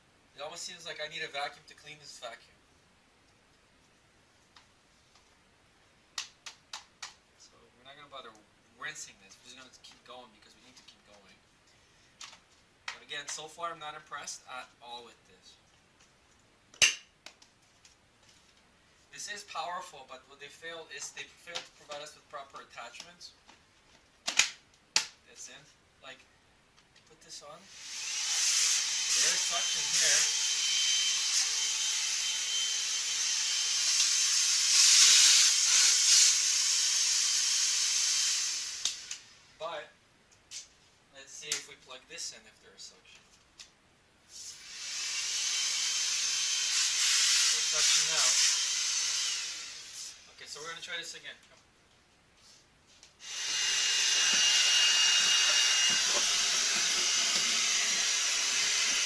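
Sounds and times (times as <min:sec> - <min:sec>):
cordless vacuum running: 0:27.7 - 0:39.3, 0:44.6 - 0:50.2, 0:53.2 - 0:59.0.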